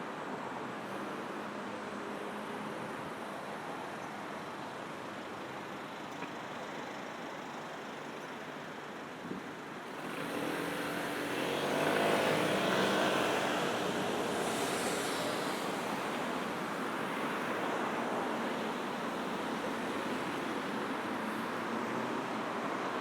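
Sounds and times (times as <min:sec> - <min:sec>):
city road traffic: 0:00.0 - 0:23.0
vehicle passing close by: 0:10.0 - 0:16.1.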